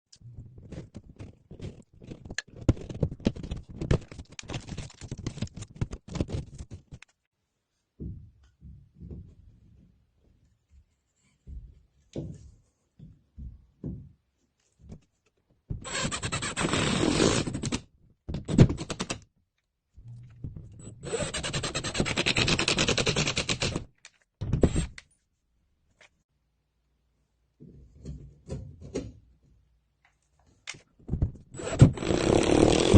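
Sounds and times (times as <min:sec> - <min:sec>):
hand tool rasping plasterboard: 0:31.6 - 0:32.9.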